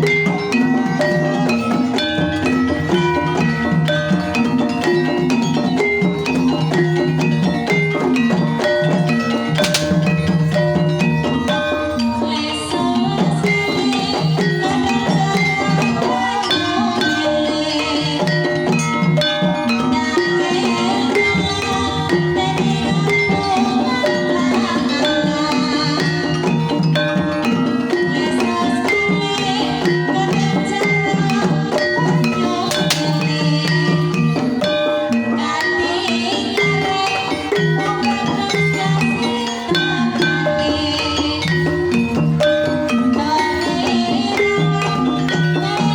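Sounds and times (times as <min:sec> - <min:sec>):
steady drum beat: 0:00.0 - 0:11.8
gamelan struck pitched notes: 0:00.0 - 0:45.9.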